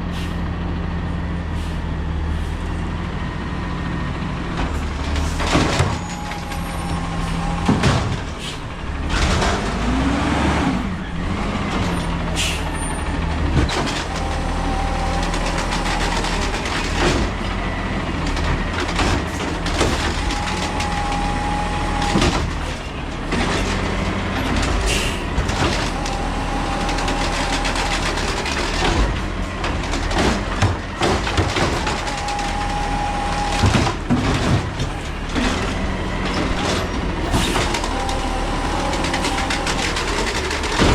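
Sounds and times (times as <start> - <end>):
garbage truck engine revving: 0.0 - 40.9
metal clanks and bangs: 4.5 - 9.9.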